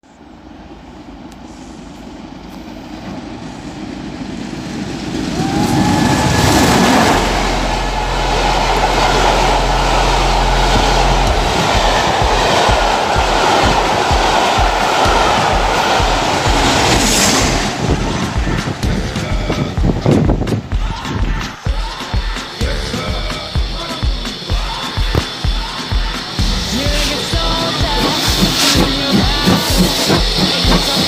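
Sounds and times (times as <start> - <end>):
train passing: 0.0 - 31.0
train wheels clickety-clack: 10.6 - 31.0.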